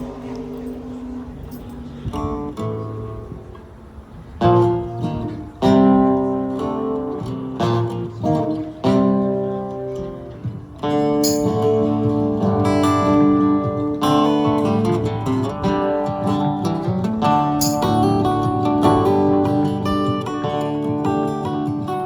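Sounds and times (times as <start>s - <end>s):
acoustic guitar strummed chords: 0.0s - 22.0s.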